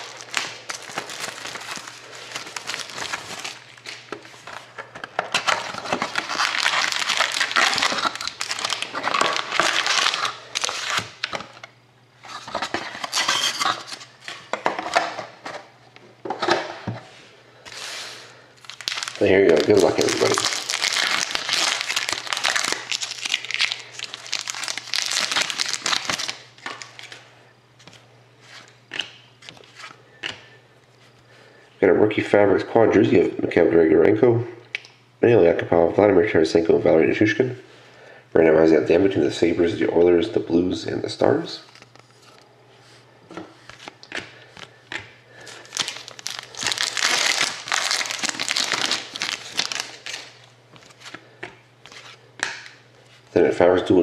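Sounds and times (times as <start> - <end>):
plastic wrapping torn and crinkled: 0.0 - 4.6, 5.3 - 11.6, 18.6 - 27.2, 45.4 - 51.2.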